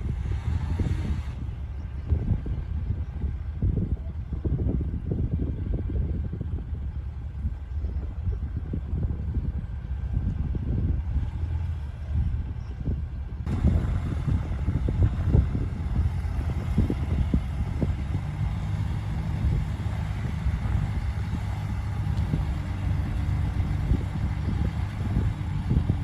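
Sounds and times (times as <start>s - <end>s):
bulldozer diesel engine running: 5.3s - 26.0s.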